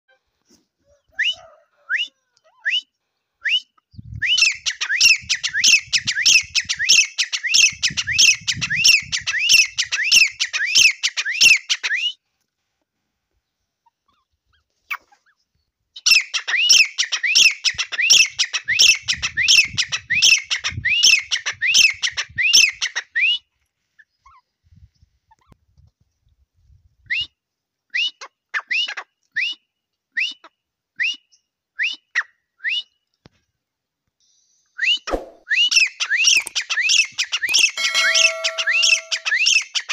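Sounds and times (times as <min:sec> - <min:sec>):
francolin calling rising notes: 0:37.8 - 0:39.5.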